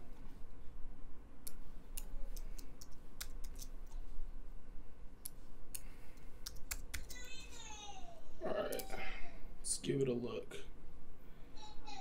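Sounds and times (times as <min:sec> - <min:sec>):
steady low hum: 0:00.0 - 0:12.0
computer mouse and keyboard clicks: 0:01.4 - 0:04.0, 0:05.7 - 0:07.2.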